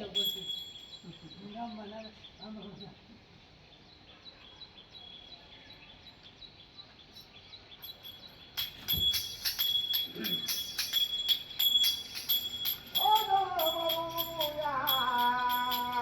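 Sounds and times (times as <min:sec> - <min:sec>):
jingling wooden clappers: 0:00.0 - 0:01.4, 0:07.8 - 0:16.0
hand cymbals: 0:07.8 - 0:16.0.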